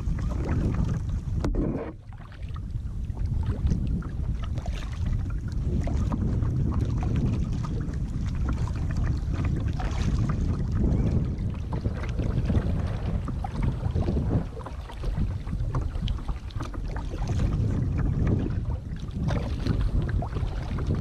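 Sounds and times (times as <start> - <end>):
paddles splashing water: 0.0 - 21.0
wind buffeting microphone: 0.0 - 21.0.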